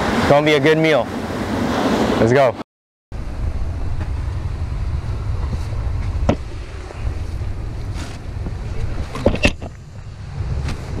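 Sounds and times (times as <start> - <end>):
wind buffeting microphone: 3.2 - 11.0.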